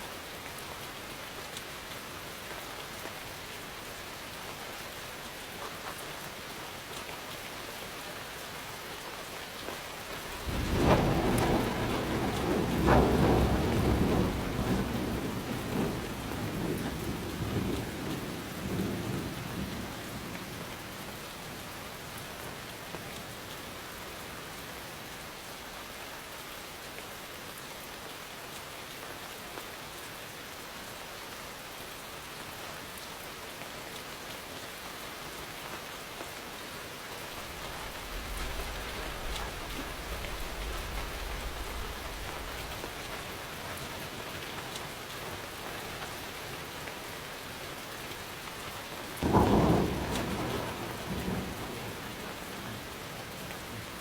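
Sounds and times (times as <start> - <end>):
rain falling: 0.0 - 54.0
thunder rumbling: 10.2 - 20.3, 37.3 - 43.8, 49.2 - 54.0.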